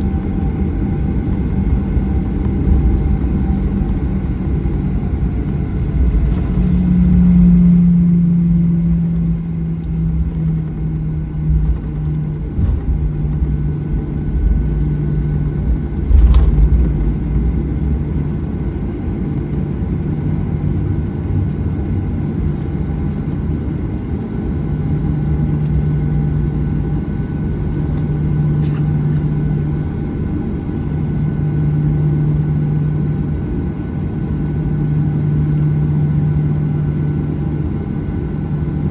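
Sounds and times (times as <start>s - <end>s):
airplane cabin rumble: 0.0s - 38.9s
jet engine hum: 0.0s - 38.9s
thump: 16.0s - 17.1s.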